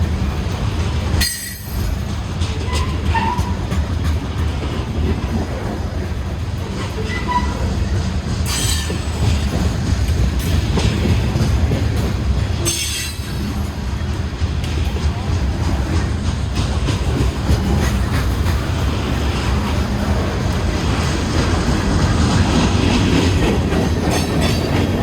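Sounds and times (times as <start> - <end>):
train cars rumbling on rails: 0.0 - 25.0
wheels squealing: 7.0 - 9.1.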